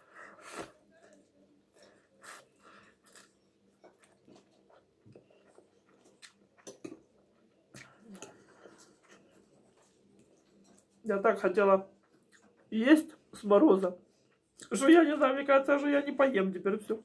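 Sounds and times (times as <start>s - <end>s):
chewing noodles: 0.4s - 11.0s, 11.9s - 12.7s.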